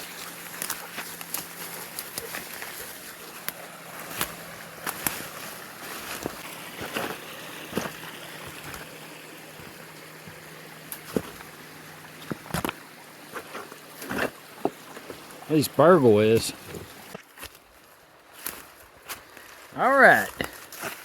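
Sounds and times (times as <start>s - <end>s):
footsteps crunching through brush: 0.0s - 11.6s, 16.5s - 21.0s
creek water rushing: 0.0s - 21.0s.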